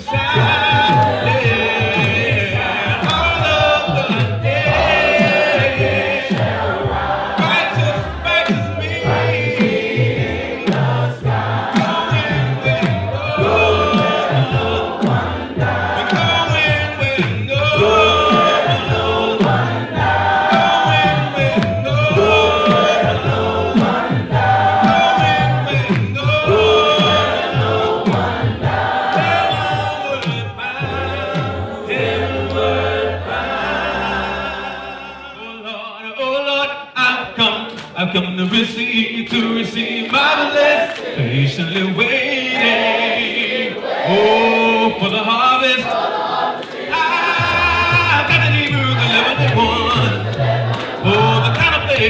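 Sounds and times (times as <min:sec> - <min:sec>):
steady low beat: 0:00.0 - 0:33.3
band playing: 0:00.0 - 0:35.4
gospel choir singing: 0:00.0 - 0:52.0.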